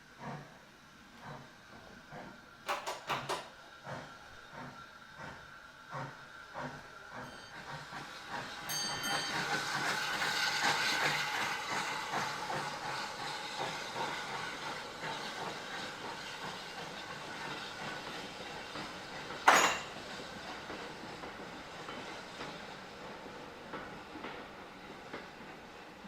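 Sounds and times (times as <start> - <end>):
train wheels knocking over rail joints: 2.6 - 4.0, 6.6 - 22.6
high squeal of train wheels: 6.6 - 26.0.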